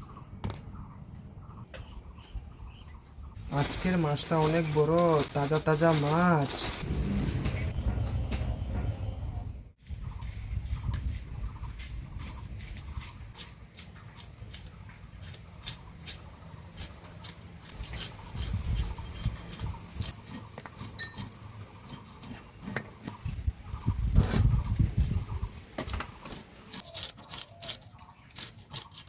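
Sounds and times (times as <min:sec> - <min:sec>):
low rumble: 0:06.5 - 0:09.8.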